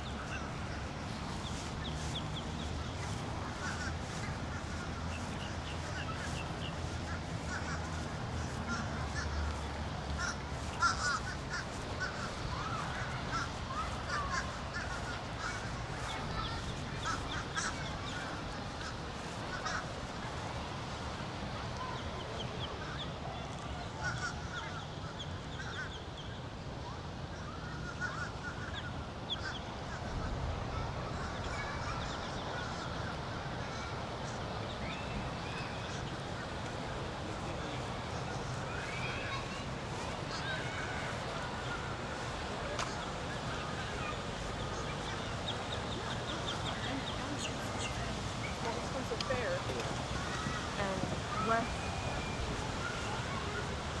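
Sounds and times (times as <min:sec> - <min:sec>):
birds chirping and cawing: 0:01.4 - 0:19.9.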